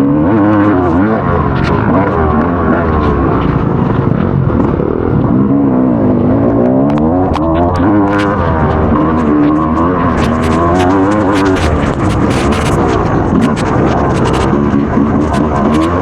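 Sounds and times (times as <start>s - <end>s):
motorbike engine revving: 0.0s - 16.0s
sharp clicks: 6.5s - 16.0s.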